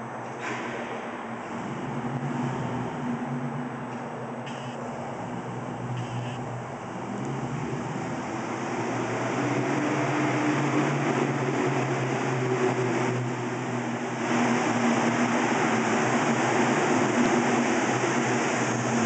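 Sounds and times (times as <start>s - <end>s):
spinning tyres hissing: 4.4s - 19.0s.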